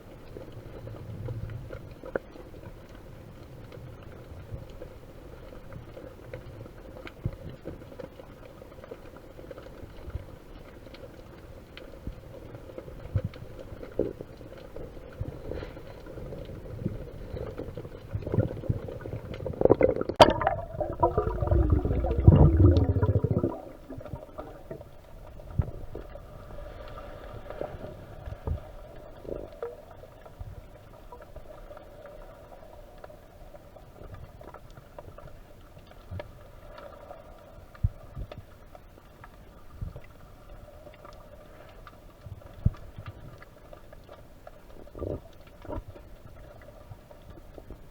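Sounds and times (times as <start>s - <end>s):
underwater water murmur: 13.6s - 35.3s
underwater churning rumble: 16.4s - 26.6s.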